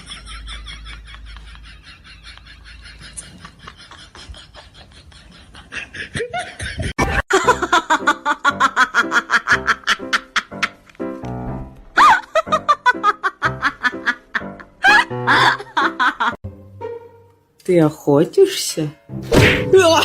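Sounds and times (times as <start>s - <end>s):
laughter in quick bursts: 0.0s - 10.8s.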